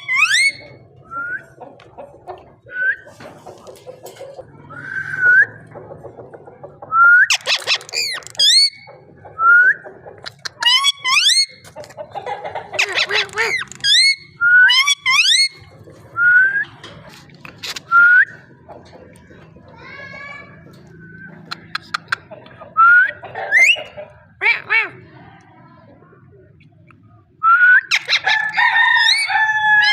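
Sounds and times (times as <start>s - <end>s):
harsh raspy parakeet calls: 10.3s - 11.6s, 12.6s - 15.6s.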